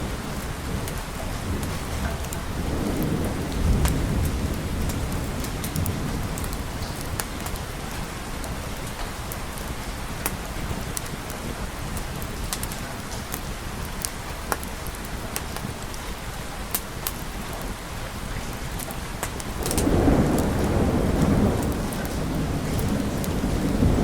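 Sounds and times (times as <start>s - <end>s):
thunder rumbling: 0.0s - 10.9s, 19.4s - 24.0s
steady rain: 0.0s - 24.0s.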